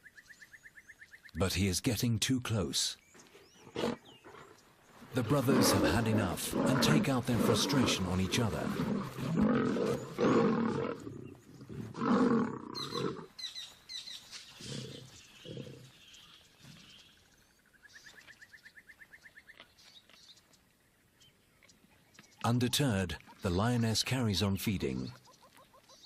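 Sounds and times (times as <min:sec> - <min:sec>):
lions snarling and roaring: 0:03.3 - 0:13.3, 0:14.6 - 0:16.0.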